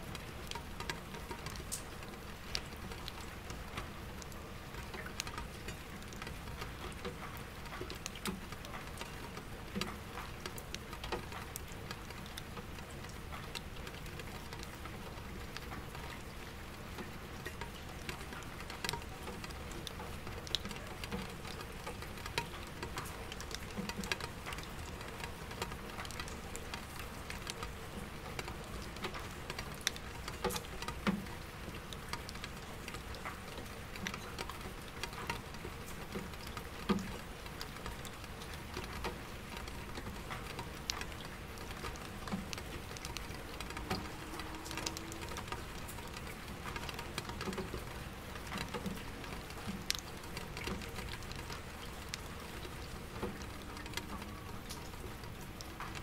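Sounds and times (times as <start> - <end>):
rain on window glass: 0.0 - 56.0
distant traffic hum: 41.5 - 48.0.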